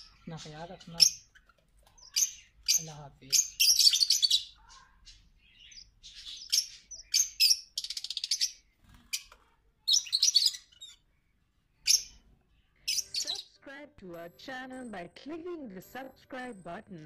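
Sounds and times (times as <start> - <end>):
birds chirping high calls: 0.0 - 13.6.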